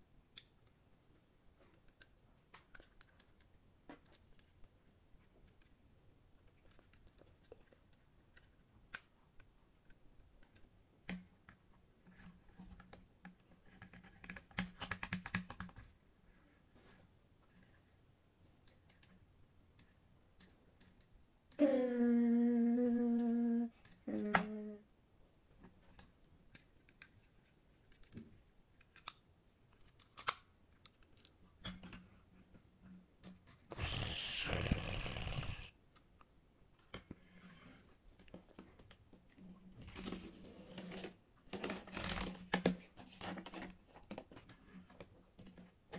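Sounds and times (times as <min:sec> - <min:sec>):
plastic clicks: 0:25.6 - 0:32.0.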